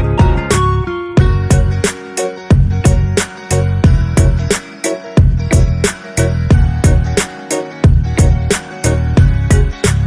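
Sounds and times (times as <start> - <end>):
drum hits: 0.0 - 1.8
bass: 0.0 - 1.9, 2.5 - 4.6, 5.2 - 10.0
guitar: 0.0 - 10.0.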